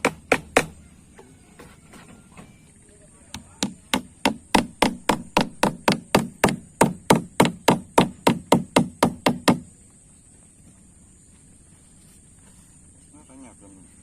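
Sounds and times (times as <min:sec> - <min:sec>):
hammer driving nails into wood: 0:00.0 - 0:00.7, 0:03.3 - 0:09.6.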